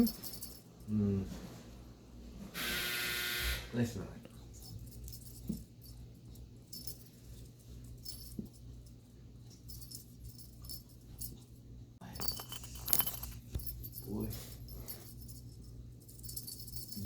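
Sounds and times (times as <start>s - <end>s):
toy jingling and rattling: 0.0s - 0.8s, 4.6s - 17.0s.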